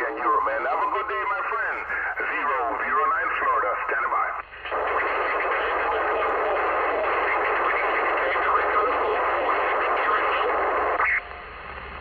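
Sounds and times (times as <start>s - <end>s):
garbled radio signals: 0.0s - 11.3s
radio static hiss: 0.0s - 12.0s.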